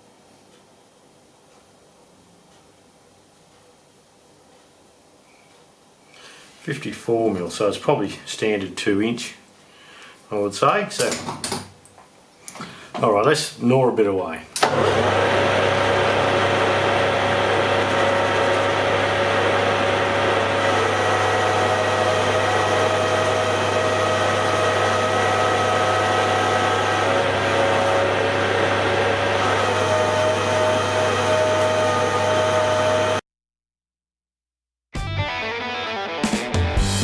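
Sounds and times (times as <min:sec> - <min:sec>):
metal lathe motor hum: 0:14.7 - 0:33.2
ringing lathe cutting tone: 0:14.7 - 0:33.2.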